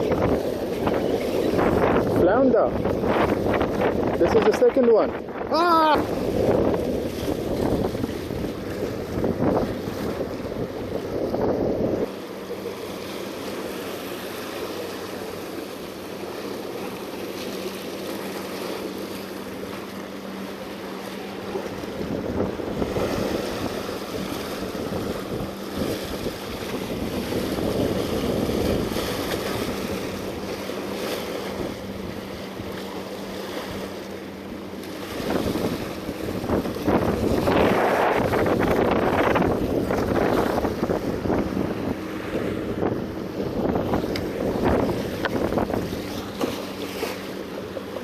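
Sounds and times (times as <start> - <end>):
wind on microphone: 0.0 - 12.2, 21.4 - 32.8, 35.0 - 46.5
waves washing against rocks: 0.0 - 34.1, 34.8 - 48.0.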